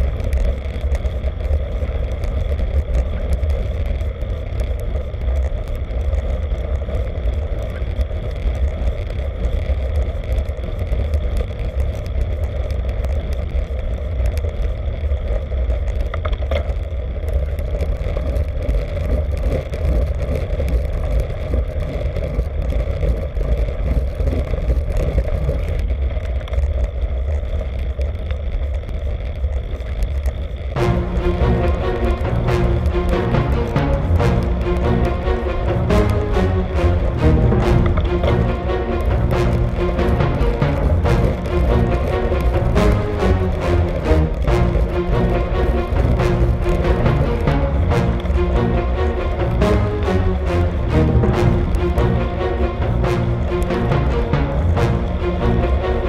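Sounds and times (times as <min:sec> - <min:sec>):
wind rushing over microphone: 0:00.0 - 0:56.0.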